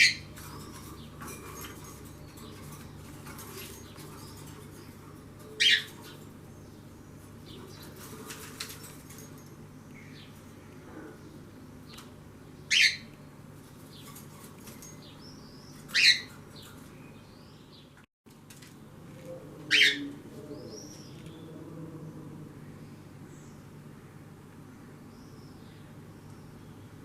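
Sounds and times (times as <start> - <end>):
small birds chirping: 0.0 - 18.0, 19.7 - 21.6.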